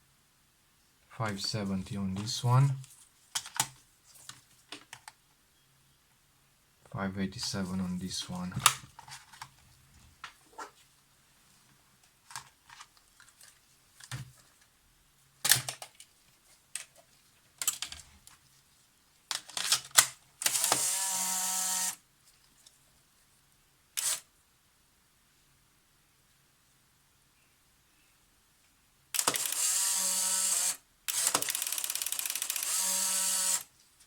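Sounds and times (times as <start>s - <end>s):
camera shutter clicks: 20.4s - 22.0s, 24.0s - 24.2s, 29.2s - 33.7s
camera motor whine: 20.5s - 22.0s, 24.0s - 24.2s, 29.2s - 33.7s.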